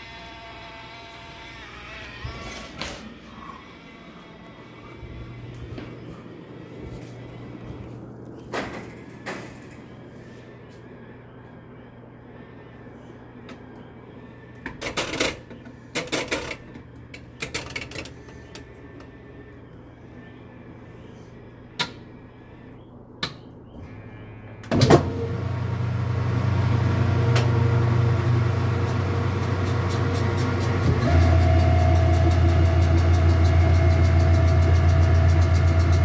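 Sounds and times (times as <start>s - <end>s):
appliance motor humming: 23.9s - 36.0s.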